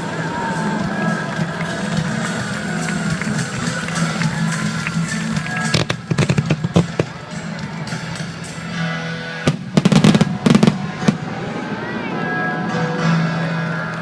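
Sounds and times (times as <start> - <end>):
background music: 0.0 - 14.0
fireworks bursting and crackling: 1.2 - 7.8, 9.5 - 12.1.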